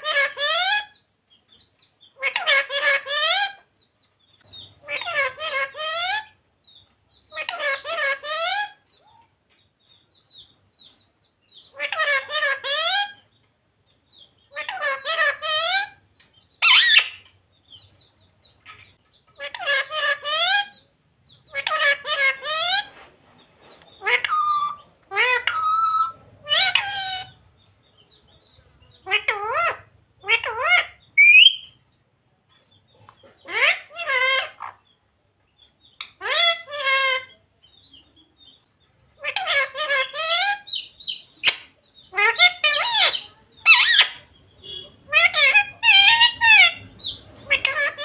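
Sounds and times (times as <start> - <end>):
parrot high calls: 0.0 - 1.0, 2.1 - 3.7, 4.8 - 6.4, 7.3 - 8.8, 11.7 - 13.2, 14.5 - 16.0, 16.6 - 17.3, 19.4 - 20.8, 21.4 - 23.0, 24.0 - 27.4, 29.0 - 31.8, 33.4 - 34.8, 36.0 - 37.4, 39.2 - 48.0
parrot chirping: 0.0 - 9.3, 9.9 - 23.0, 23.8 - 48.0.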